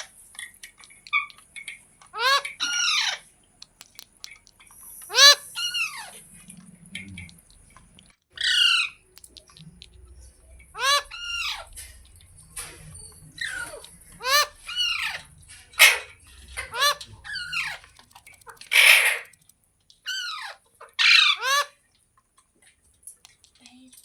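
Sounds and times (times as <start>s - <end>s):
parrot squawking: 2.1s - 3.3s, 5.0s - 6.3s, 8.3s - 9.8s, 10.7s - 12.0s, 13.3s - 19.4s, 20.0s - 21.8s.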